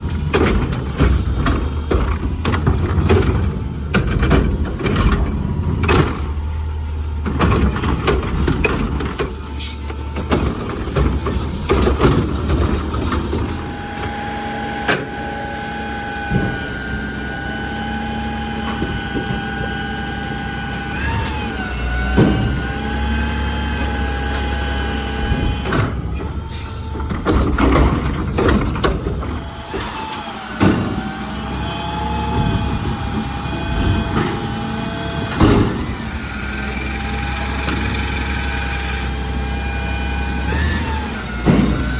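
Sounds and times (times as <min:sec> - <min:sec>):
metal clanks and knocks: 0:00.0 - 0:15.2, 0:21.5 - 0:23.2, 0:23.8 - 0:31.3, 0:32.2 - 0:38.5, 0:40.5 - 0:41.9
diesel engine running: 0:00.0 - 0:41.9.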